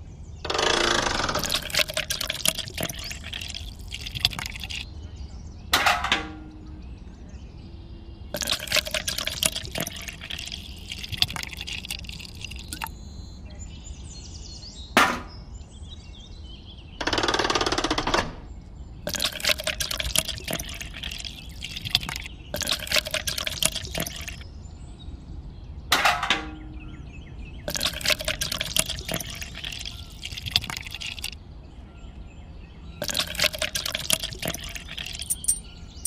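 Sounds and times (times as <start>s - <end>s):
cement slurry splashing into pail: 1.4s - 4.9s, 8.4s - 12.9s, 19.1s - 24.4s, 27.7s - 31.4s, 33.0s - 35.6s.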